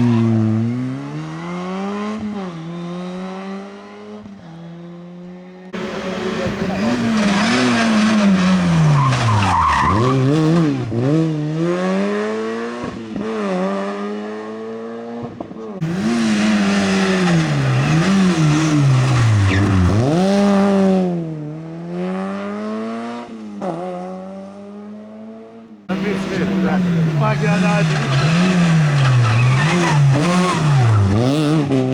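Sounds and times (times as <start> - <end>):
rally car engines revving: 0.0 - 31.9
tyre squeal: 5.8 - 10.7, 16.3 - 20.0, 25.9 - 31.3.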